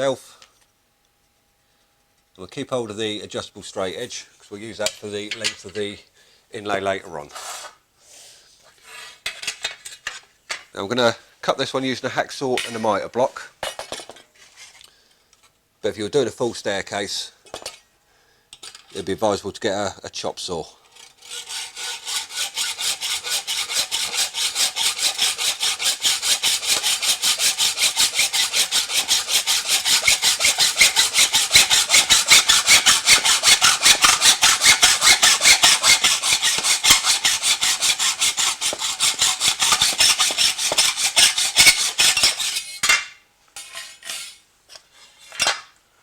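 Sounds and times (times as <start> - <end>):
hacksaw cutting aluminium: 20.9 - 44.4.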